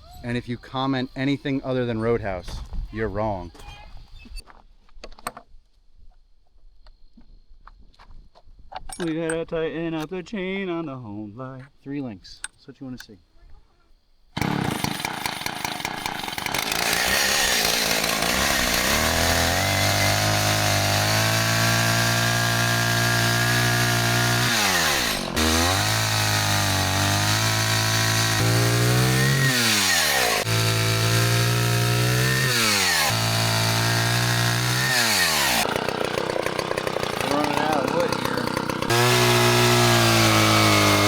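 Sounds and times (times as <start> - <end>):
chainsaw running: 14.4 - 41.0.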